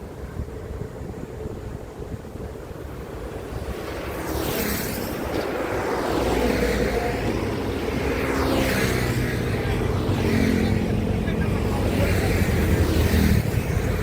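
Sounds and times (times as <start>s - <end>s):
highway traffic drone: 0.0s - 14.0s
vehicle whooshing past: 3.6s - 14.0s.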